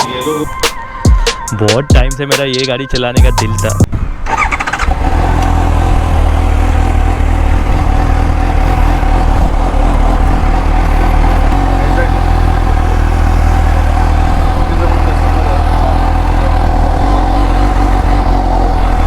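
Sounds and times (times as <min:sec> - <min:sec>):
motorcycle engine running: 0:04.4 - 0:19.0.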